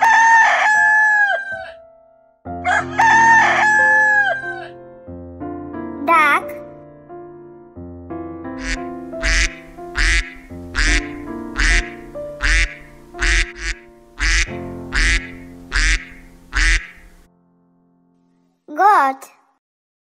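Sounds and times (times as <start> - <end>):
gentle keyboard music: 0.0 - 18.5
duck quacking: 8.6 - 17.2.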